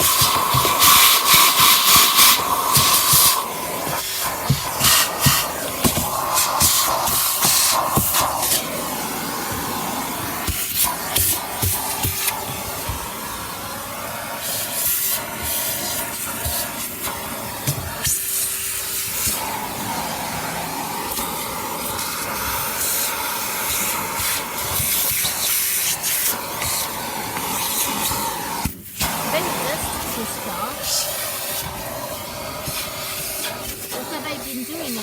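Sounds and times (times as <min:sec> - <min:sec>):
vacuum cleaner running: 0:00.0 - 0:35.0.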